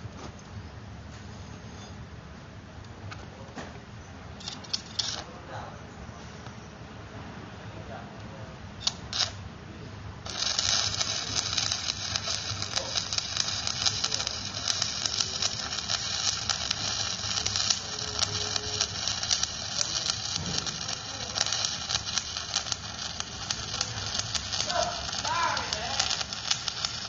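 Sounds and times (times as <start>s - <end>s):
arc welding crackling: 4.4s - 5.3s, 8.8s - 9.5s, 10.2s - 27.0s.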